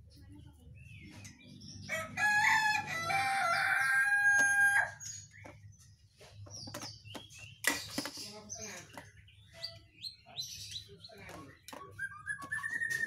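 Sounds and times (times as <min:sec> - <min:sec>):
rooster crowing: 0:01.9 - 0:05.0.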